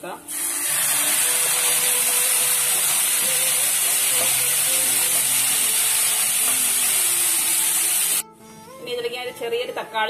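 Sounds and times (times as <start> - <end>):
water sizzling in hot pan: 0.3 - 8.2.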